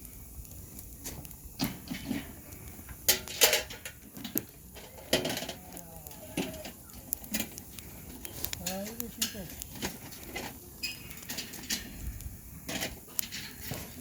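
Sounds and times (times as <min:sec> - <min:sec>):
campfire crackling: 0:00.0 - 0:14.0
sharp pops of fire: 0:00.0 - 0:14.0.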